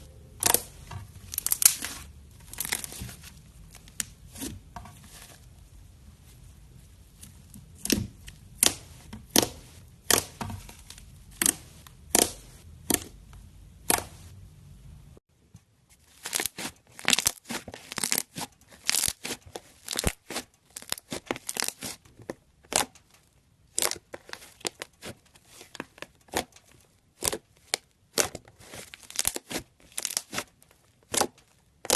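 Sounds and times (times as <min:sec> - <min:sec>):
slime popping and crackling: 0:00.4 - 0:03.2, 0:16.2 - 0:22.0, 0:23.7 - 0:25.1, 0:27.2 - 0:31.9.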